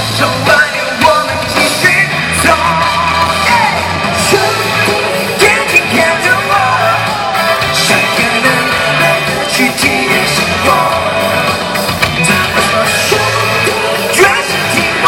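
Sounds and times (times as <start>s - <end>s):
live pop dance band music: 0.0s - 15.0s
person singing: 0.0s - 15.0s
shouts: 2.3s - 7.8s.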